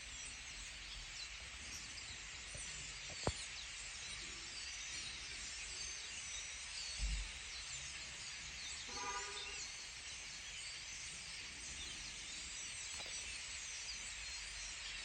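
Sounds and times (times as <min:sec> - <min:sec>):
birds chirping chorus: 0:00.0 - 0:15.0.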